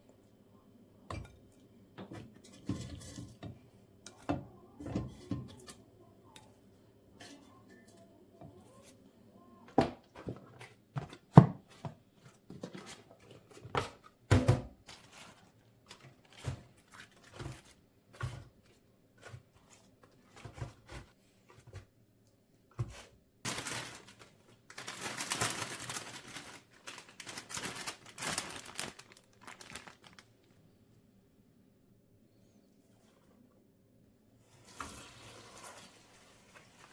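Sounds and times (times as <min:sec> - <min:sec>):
packaging crinkling and rustling: 0:23.5 - 0:30.6.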